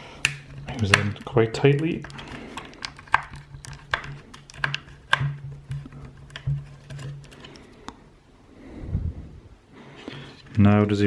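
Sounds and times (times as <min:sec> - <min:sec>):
clicks and taps on plastic: 0:00.2 - 0:08.0.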